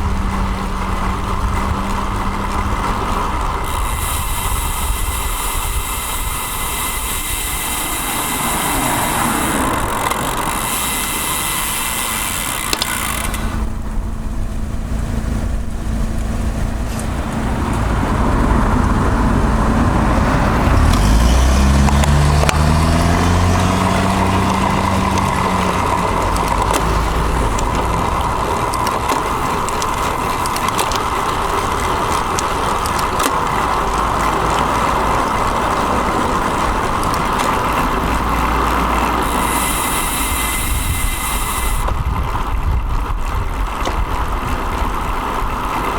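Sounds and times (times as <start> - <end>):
vehicle engine speeding up: 0.0 - 43.6
road rumble: 0.0 - 45.9
road traffic: 0.0 - 45.9
wind on microphone: 13.5 - 45.9.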